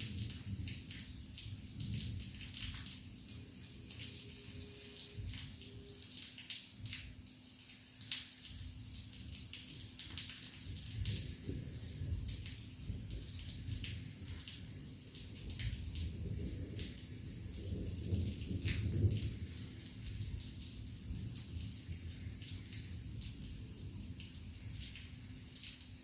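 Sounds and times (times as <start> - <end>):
rain falling: 0.0 - 26.0
raindrops ticking close by: 0.0 - 26.0.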